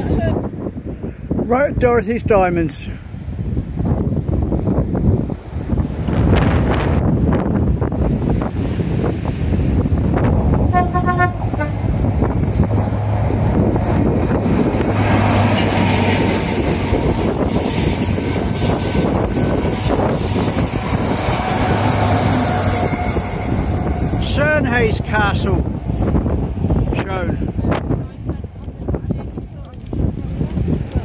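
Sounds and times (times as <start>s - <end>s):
wind on microphone: 0.0s - 31.0s
train rumbling past: 4.5s - 31.0s
short train horn toot: 10.7s - 11.8s.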